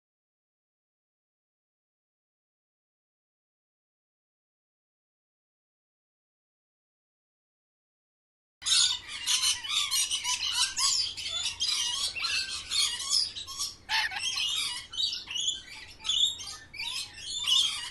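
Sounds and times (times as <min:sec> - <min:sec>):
birds chirping and squawking: 0:08.6 - 0:17.9.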